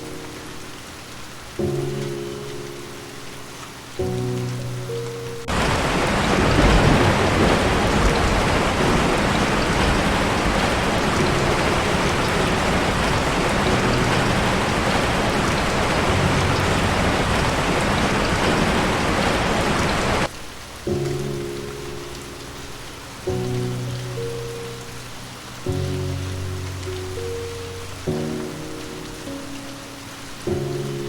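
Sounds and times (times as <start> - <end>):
soft music with held notes: 0.0 - 5.5, 20.2 - 31.0
heavy rain hissing: 0.0 - 31.0.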